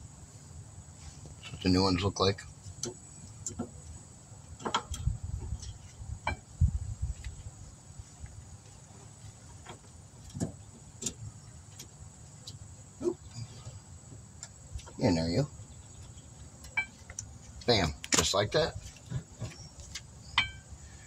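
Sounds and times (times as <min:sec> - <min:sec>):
metallic clicks of brake pads: 0:04.5 - 0:06.5, 0:16.0 - 0:20.7.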